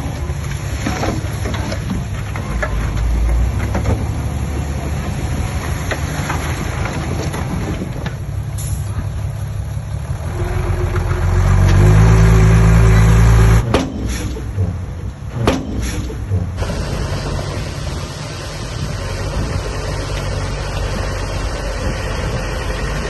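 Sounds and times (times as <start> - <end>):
heavy diesel engine revving: 0.0 - 23.0
sharp knocks: 13.6 - 16.5.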